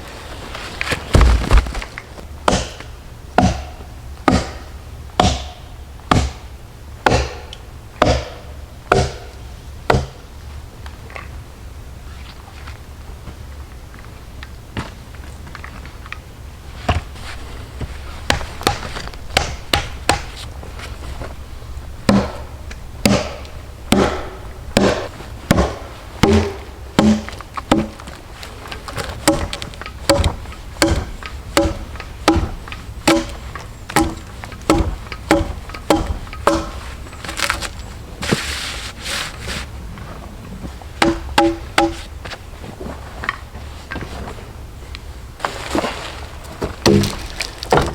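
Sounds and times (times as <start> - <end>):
tool chopping wood: 1.1 - 10.2, 18.2 - 20.5, 22.1 - 28.1, 28.7 - 37.8, 41.0 - 42.1, 46.8 - 47.9.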